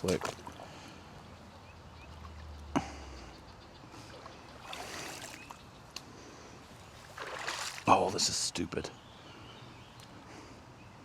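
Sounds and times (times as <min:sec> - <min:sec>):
water lapping and trickling: 0:00.0 - 0:08.5.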